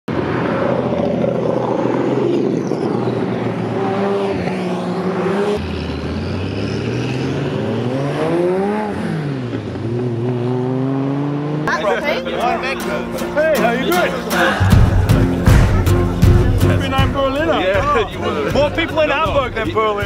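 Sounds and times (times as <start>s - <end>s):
engine revving: 0.1s - 11.7s
car engines running: 0.1s - 20.0s.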